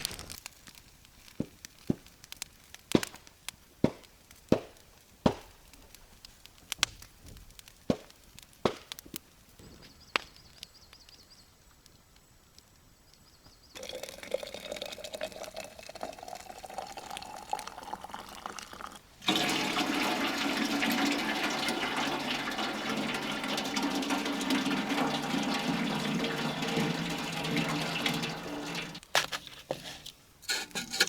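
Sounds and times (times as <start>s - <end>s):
running water rushing: 13.8s - 29.1s
water pouring into container: 13.8s - 29.1s.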